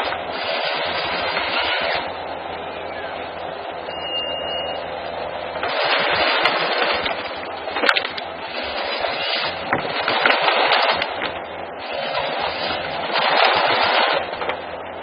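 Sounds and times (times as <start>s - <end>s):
timber cracking and splintering: 5.6s - 14.7s.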